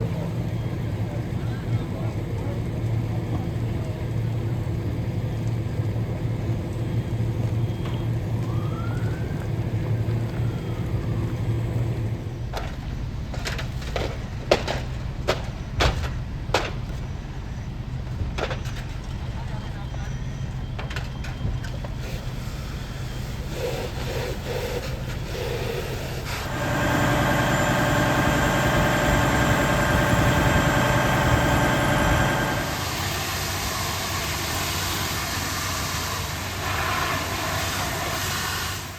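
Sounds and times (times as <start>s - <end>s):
vehicle engine droning: 0.0s - 38.9s
faint rising and falling tone: 26.4s - 33.0s.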